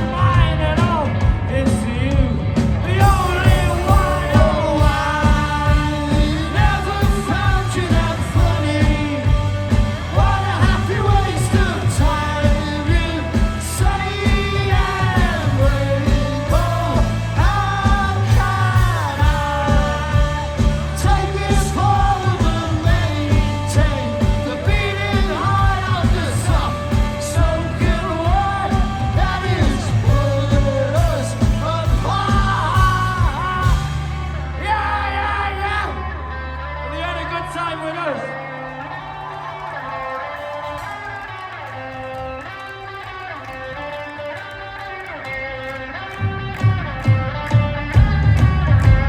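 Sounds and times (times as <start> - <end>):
live rock band playing: 0.0 - 35.4, 40.5 - 49.0
lead vocal singing: 0.0 - 39.2.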